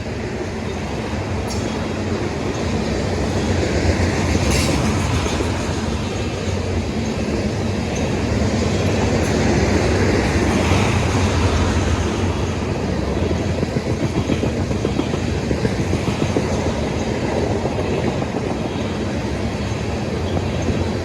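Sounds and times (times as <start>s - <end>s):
clickety-clack over rail joints: 0.0s - 21.0s
train wheels rumbling on rails: 0.0s - 21.0s.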